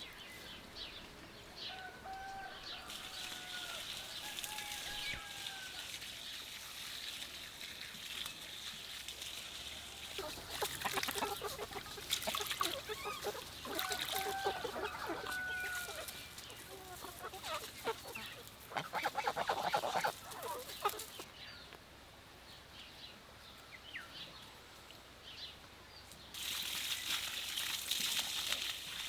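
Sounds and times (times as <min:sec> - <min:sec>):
chickens clucking and scuffling: 0:00.4 - 0:21.3
rooster crowing: 0:01.7 - 0:06.0, 0:13.6 - 0:16.2.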